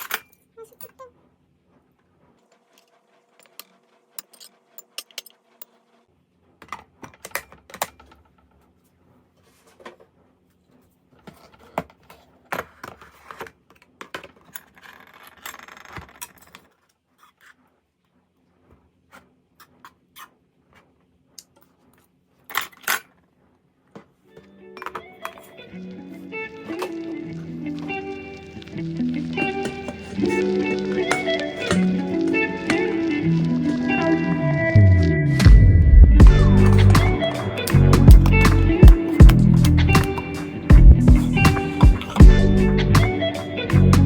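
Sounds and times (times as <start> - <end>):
scraping and handling: 0.0 - 35.5
tableware clinking: 36.5 - 40.4.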